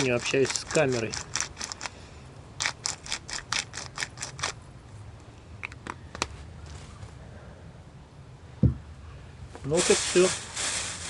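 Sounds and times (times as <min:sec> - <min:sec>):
rhythmic scratchy strokes: 0:00.0 - 0:01.9.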